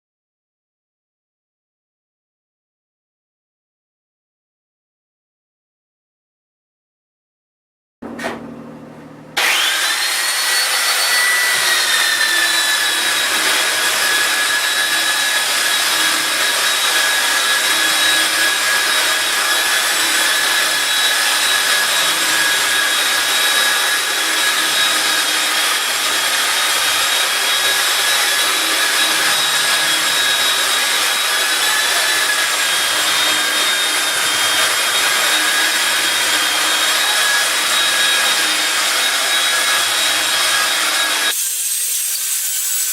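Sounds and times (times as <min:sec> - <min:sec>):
power sander motor whine: 0:08.4 - 0:41.4.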